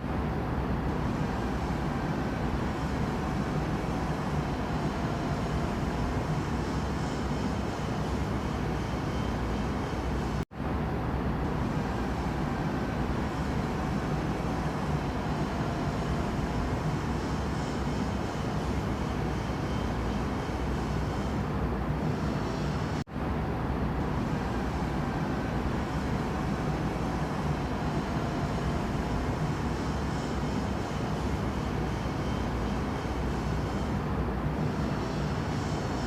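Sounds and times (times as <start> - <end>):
low rumbling background noise: 0.0 - 36.0.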